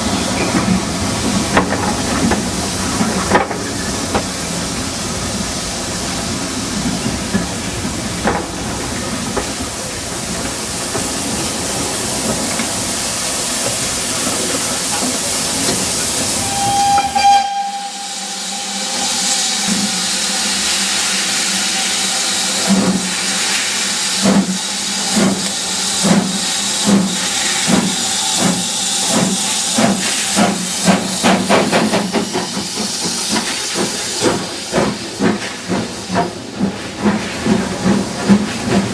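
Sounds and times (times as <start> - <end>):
steam locomotive hissing: 0.0 - 38.9
train whistle: 16.4 - 20.9.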